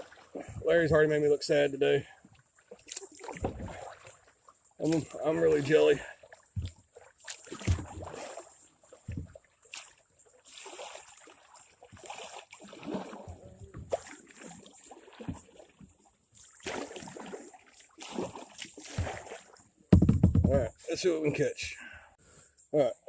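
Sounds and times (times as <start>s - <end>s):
paddle strokes splashing: 0.0s - 19.8s
knocks against boat: 19.9s - 20.7s.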